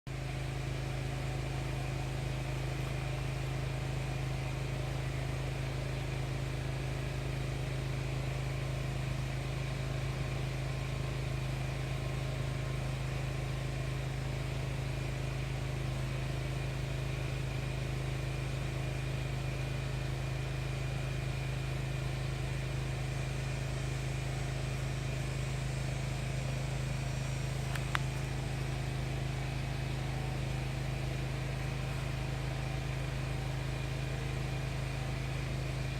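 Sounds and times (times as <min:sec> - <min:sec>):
low mechanical hum: 0:00.1 - 0:35.9
faint click: 0:27.7 - 0:28.2.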